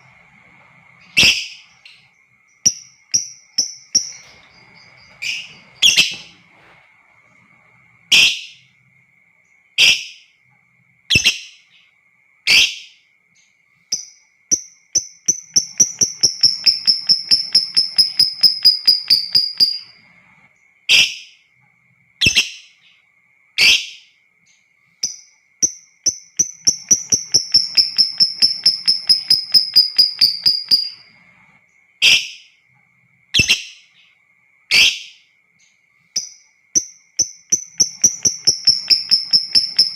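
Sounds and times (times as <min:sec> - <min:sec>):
faint steady high tone: 0:00.0 - 0:22.1, 0:22.7 - 0:39.9
bird chattering trill: 0:01.0 - 0:02.1, 0:15.0 - 0:19.9, 0:25.6 - 0:31.1, 0:36.2 - 0:39.9.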